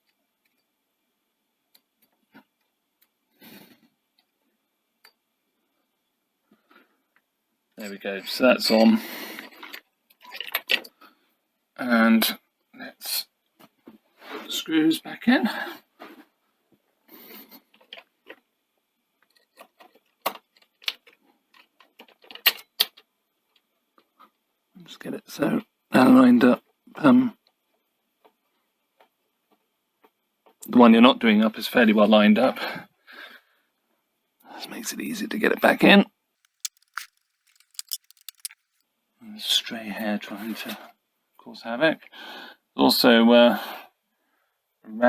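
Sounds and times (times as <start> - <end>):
brief rustle: 36.5 - 38.8
faint small clicks: 36.5 - 38.8
rubber belt rubbing scrape: 36.5 - 38.8.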